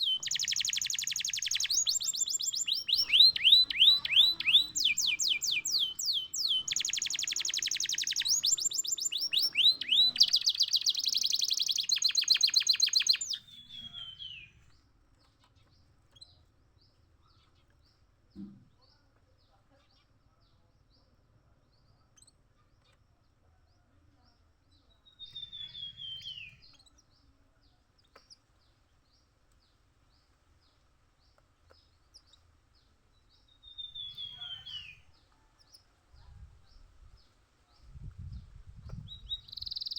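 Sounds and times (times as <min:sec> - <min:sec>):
canary singing: 0:00.0 - 0:14.6, 0:25.2 - 0:26.8, 0:33.6 - 0:35.1, 0:38.9 - 0:39.9.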